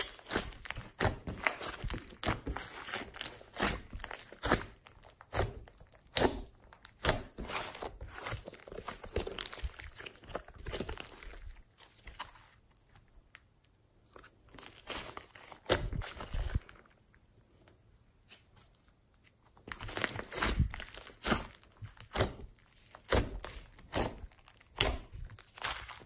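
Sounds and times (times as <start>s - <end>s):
slime crackling and popping: 0.0s - 11.7s, 19.6s - 26.0s.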